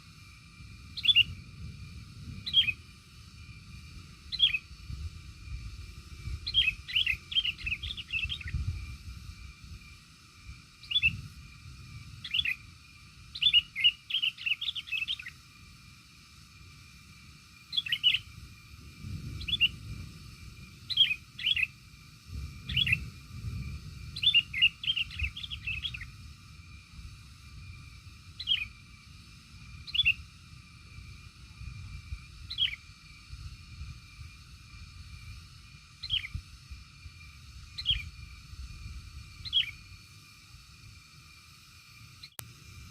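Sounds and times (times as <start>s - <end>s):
small bird chirping: 0.9s - 1.4s, 2.3s - 2.8s, 4.2s - 4.8s, 6.2s - 8.9s, 10.8s - 11.3s, 12.1s - 15.4s, 17.6s - 18.4s, 19.2s - 20.0s, 20.8s - 26.2s, 28.4s - 28.8s, 29.8s - 30.3s, 31.9s - 33.2s, 36.0s - 36.5s, 37.6s - 38.4s, 39.3s - 39.9s, 42.2s - 42.4s.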